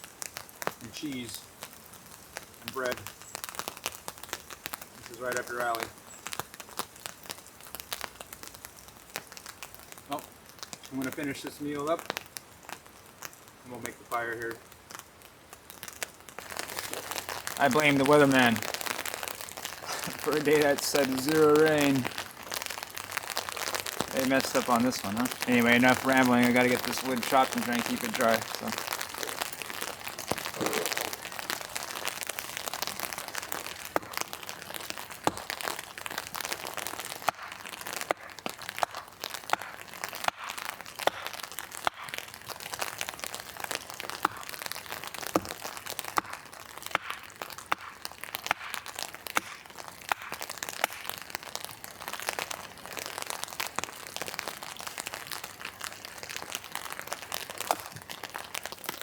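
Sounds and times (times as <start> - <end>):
rain hissing: 0.0 - 59.0
sharp clicks and crackles: 15.8 - 59.0.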